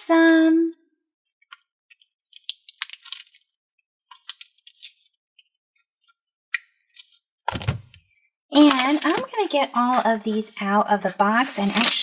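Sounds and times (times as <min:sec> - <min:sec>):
hands handling packaging: 0:02.3 - 0:03.5, 0:04.1 - 0:06.2, 0:06.9 - 0:12.0.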